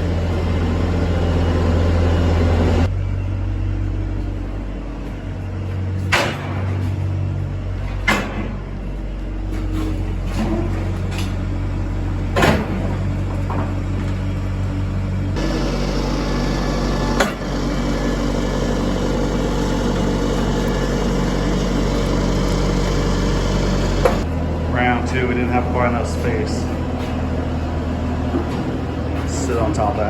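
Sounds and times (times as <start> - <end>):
machine engine running: 0.0 - 6.1, 13.8 - 30.0.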